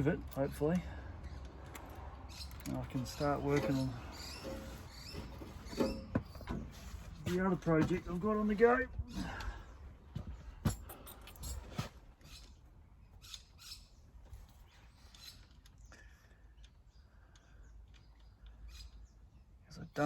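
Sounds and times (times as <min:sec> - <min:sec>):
hand tools clicking and scraping: 0:01.4 - 0:09.6, 0:10.2 - 0:12.6.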